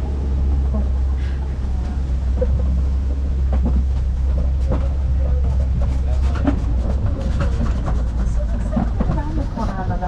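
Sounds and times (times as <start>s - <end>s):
truck engine and road rumble: 0.0s - 10.0s
vehicle body knocks and rattles: 2.4s - 9.8s.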